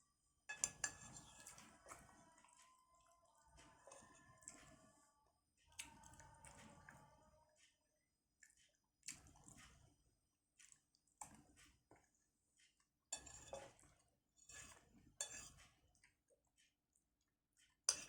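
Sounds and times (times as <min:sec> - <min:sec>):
cutlery scraping a plate: 0:00.5 - 0:01.6, 0:13.1 - 0:13.8, 0:14.5 - 0:15.6.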